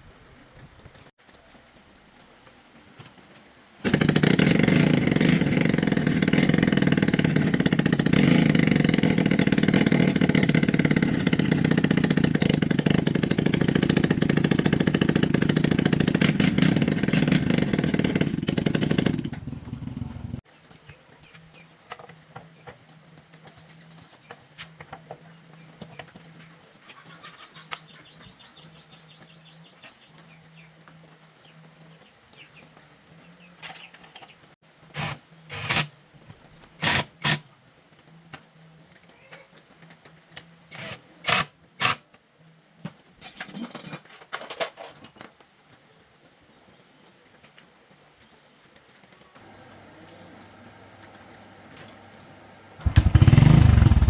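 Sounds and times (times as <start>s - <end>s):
vehicle engine running: 3.9s - 20.4s, 49.4s - 54.0s
faint bird chirps: 26.8s - 30.7s.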